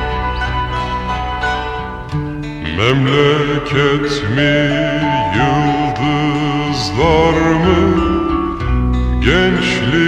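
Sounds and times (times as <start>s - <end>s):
held instrumental line: 0.0s - 10.0s
deep male voice singing: 2.6s - 10.0s.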